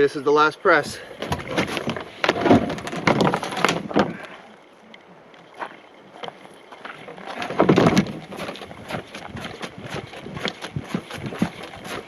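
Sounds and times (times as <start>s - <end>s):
footsteps scuffing on trail: 5.5s - 12.0s.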